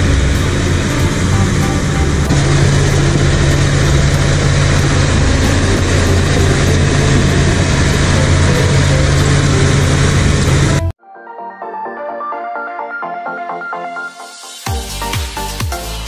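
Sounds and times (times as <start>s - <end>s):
bulldozer diesel engine running: 0.0s - 10.9s
mechanical noise: 0.0s - 10.9s.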